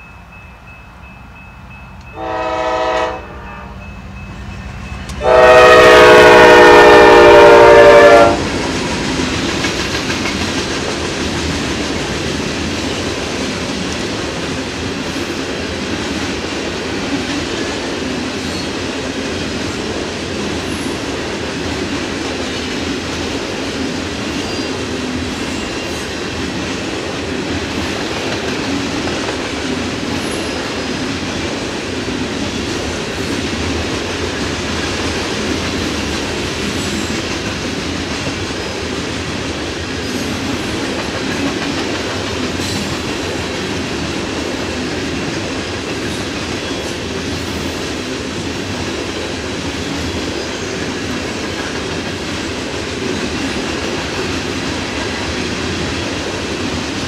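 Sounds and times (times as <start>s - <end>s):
locomotive air horn: 2.1s - 3.8s, 5.2s - 8.5s
train wheels rumbling on rails: 3.8s - 57.0s.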